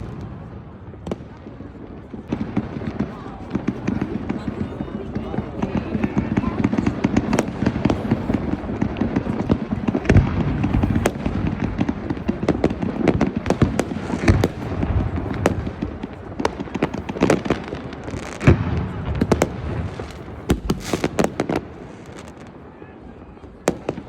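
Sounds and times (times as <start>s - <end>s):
loud firework booms: 0.0s - 22.7s, 23.4s - 24.0s
fireworks crackling and banging: 0.0s - 24.0s.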